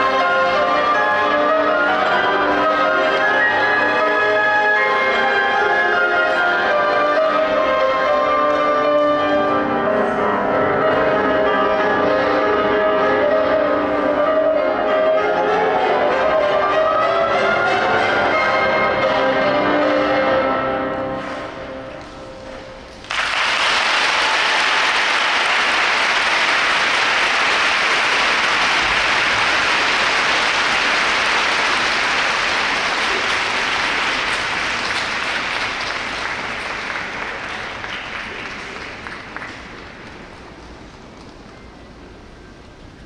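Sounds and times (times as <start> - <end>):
audience applause: 23.0 - 40.4.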